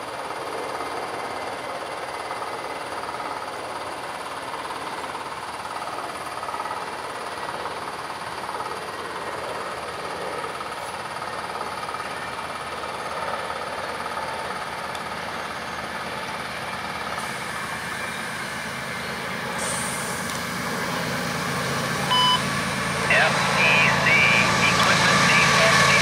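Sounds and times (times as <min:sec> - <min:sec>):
train engines and wheels rumbling: 0:00.0 - 0:26.0
short beep: 0:22.0 - 0:25.9.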